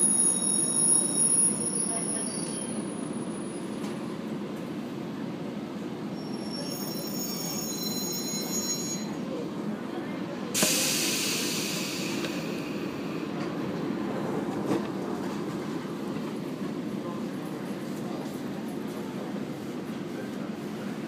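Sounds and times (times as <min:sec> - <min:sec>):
high-pitched brake squeal: 0:00.0 - 0:03.7, 0:06.1 - 0:09.2
brake air hiss: 0:10.6 - 0:13.1.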